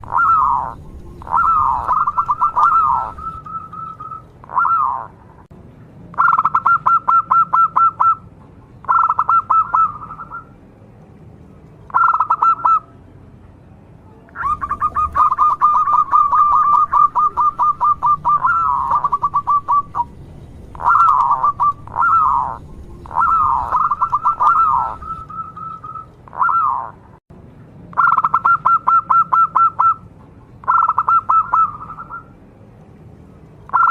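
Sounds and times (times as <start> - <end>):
dove cooing: 0.0 - 5.2, 6.2 - 8.2, 8.8 - 10.5, 11.9 - 12.9, 14.4 - 20.1, 20.7 - 27.0, 28.0 - 30.0, 30.6 - 32.3.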